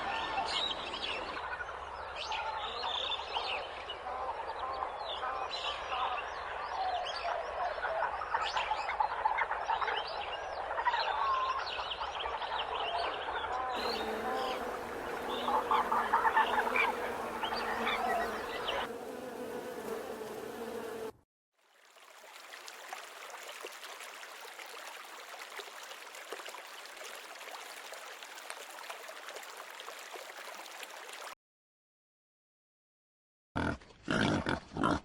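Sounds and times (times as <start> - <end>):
hiss with faint crackles: 13.8 - 21.1
insect-like buzz: 13.8 - 21.2.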